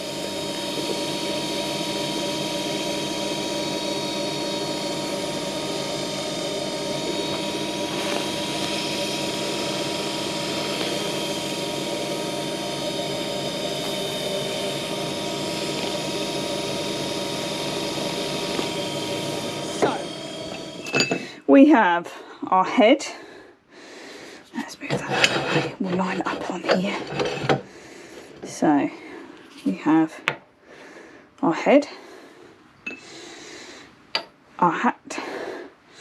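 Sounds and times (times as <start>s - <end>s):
lathe motor whine: 0.0s - 21.3s, 24.9s - 27.7s.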